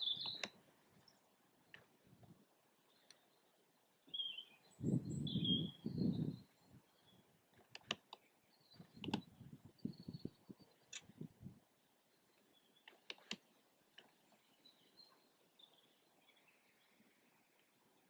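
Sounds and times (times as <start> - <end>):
faint bird chirps: 0.0 - 1.9, 2.8 - 18.0
sharp clicks: 0.1 - 0.6, 7.6 - 9.3, 10.9 - 11.1, 12.8 - 14.1.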